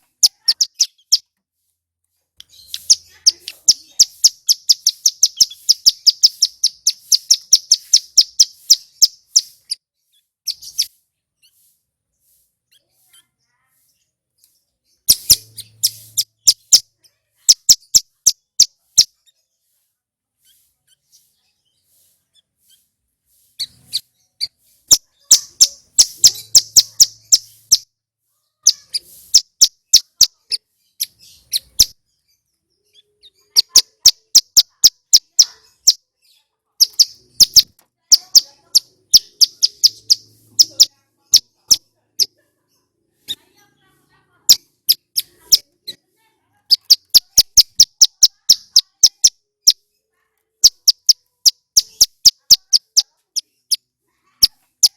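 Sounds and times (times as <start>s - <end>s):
bird rapid sharp chirping: 0.0s - 1.3s, 2.4s - 13.2s, 14.9s - 19.2s, 22.6s - 27.9s, 28.6s - 32.0s, 32.9s - 36.0s, 36.8s - 42.3s, 44.5s - 45.7s, 46.7s - 49.8s, 50.6s - 53.8s, 54.4s - 54.9s.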